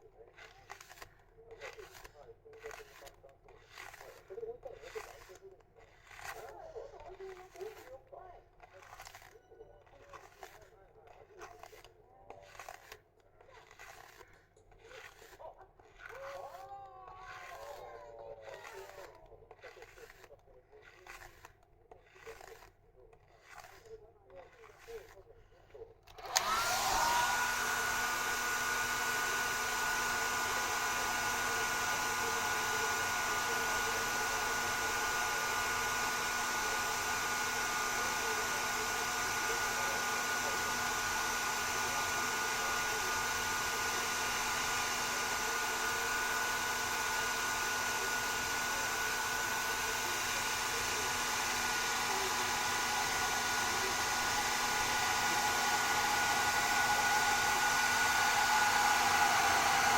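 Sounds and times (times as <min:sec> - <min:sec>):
hair dryer blowing: 0:00.0 - 0:04.2, 0:04.8 - 0:07.9, 0:15.0 - 0:19.1, 0:26.1 - 0:59.9.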